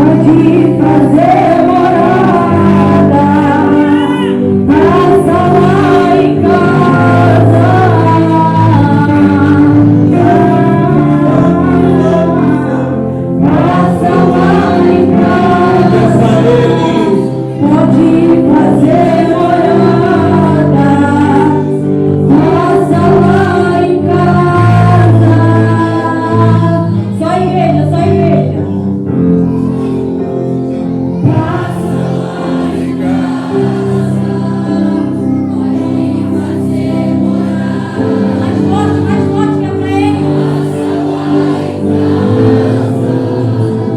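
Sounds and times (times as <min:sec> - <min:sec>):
group singing slow praise song: 0:00.0 - 0:43.9
sustained instrumental chords: 0:00.0 - 0:43.9.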